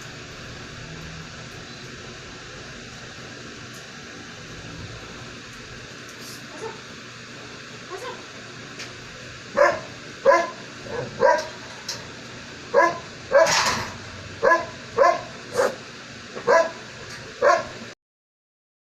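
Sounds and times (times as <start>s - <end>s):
dog barking: 6.5s - 6.8s, 9.6s - 11.6s, 12.7s - 13.7s, 14.4s - 15.8s, 16.4s - 16.8s, 17.4s - 17.8s.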